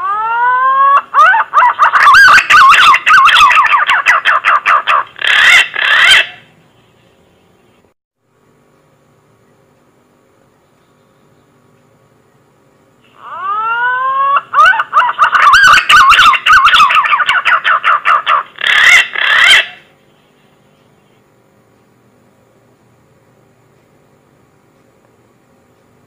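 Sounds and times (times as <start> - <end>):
pigeon call whistle warble: 2.0 - 4.2.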